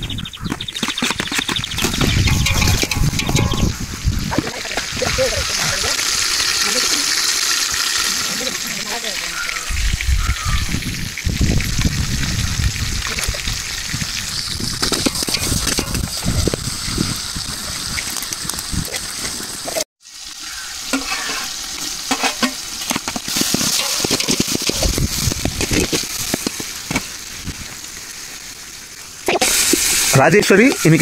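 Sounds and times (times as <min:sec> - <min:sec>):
food sizzling in hot oil: 0:01.7 - 0:31.0
spoon scraping a pan: 0:02.0 - 0:03.8, 0:20.5 - 0:25.0.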